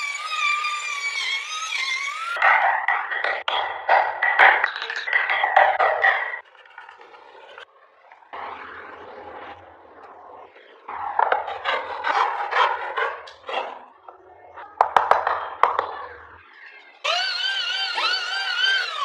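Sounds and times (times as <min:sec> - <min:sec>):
tool scraping on wood: 0:08.4 - 0:13.8.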